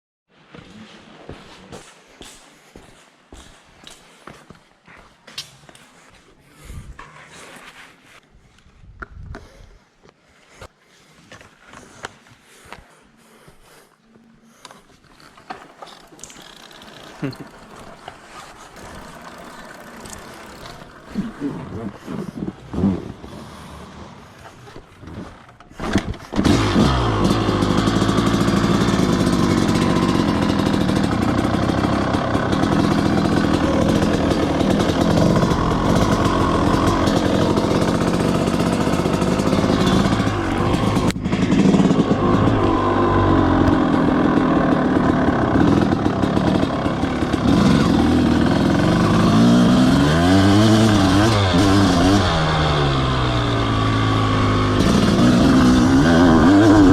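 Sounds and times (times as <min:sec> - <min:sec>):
motocross bike engine revving: 0:15.0 - 0:56.9.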